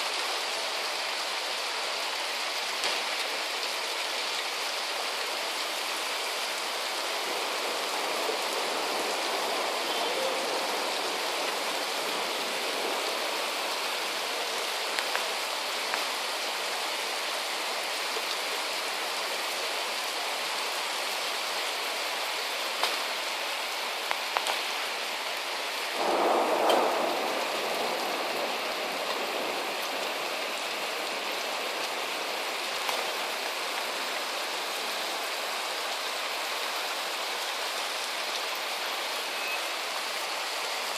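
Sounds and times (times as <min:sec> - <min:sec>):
heavy rain hiss: 0:00.0 - 0:40.9.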